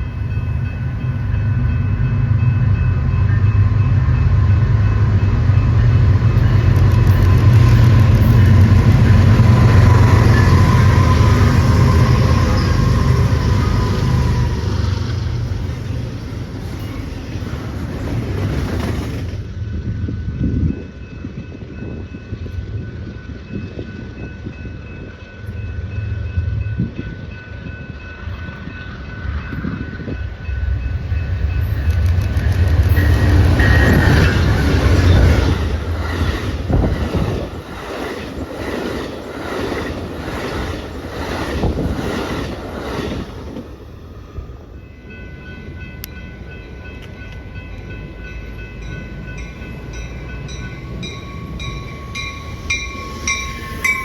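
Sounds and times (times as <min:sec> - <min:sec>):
train engine rumble: 0:00.0 - 0:54.0
train wheels clicking over rail joints: 0:31.6 - 0:43.8.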